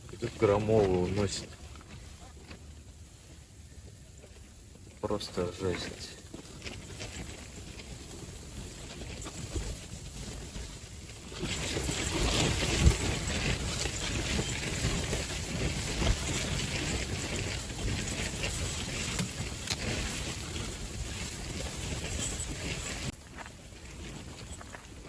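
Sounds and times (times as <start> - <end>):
strong gusting wind on microphone: 11.4 - 23.1.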